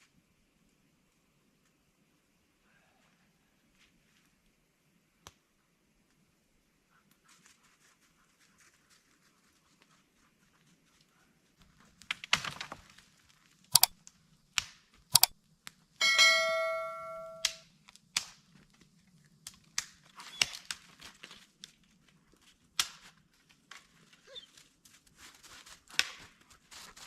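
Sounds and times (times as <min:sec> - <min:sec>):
metal object struck ringing: 0:16.0 - 0:17.5.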